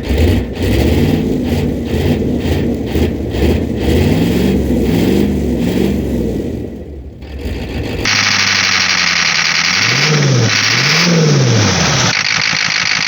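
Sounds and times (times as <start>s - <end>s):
diesel engine running rough: 0.0s - 13.0s.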